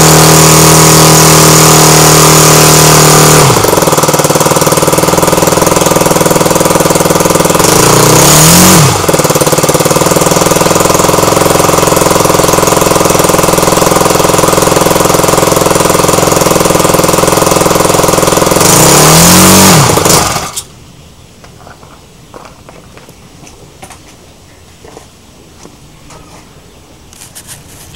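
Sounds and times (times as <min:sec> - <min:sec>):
model aircraft engine running: 0:00.0 - 0:20.7.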